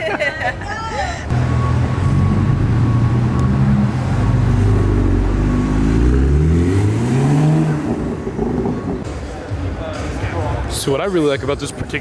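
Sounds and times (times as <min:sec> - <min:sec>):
car engine revving: 0:01.3 - 0:09.0.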